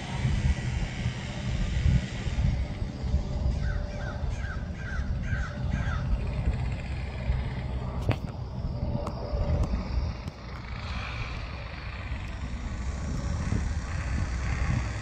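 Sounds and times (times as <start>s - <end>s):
steady low rumble: 0.0s - 15.0s
bird calling: 3.5s - 6.8s.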